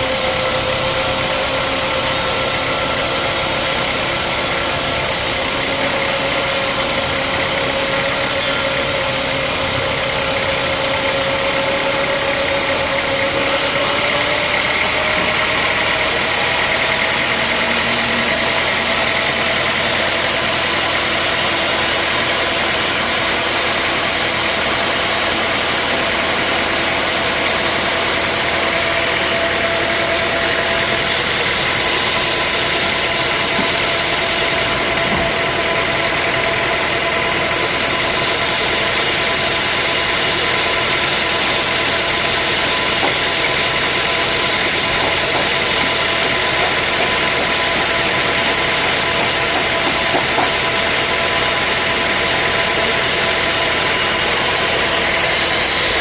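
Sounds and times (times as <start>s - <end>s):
sawmill machinery droning: 0.0s - 56.0s.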